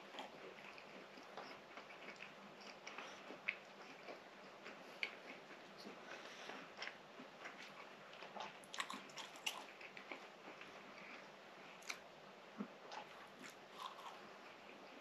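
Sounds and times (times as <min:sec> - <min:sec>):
person chewing: 0:00.0 - 0:12.0, 0:12.6 - 0:15.0.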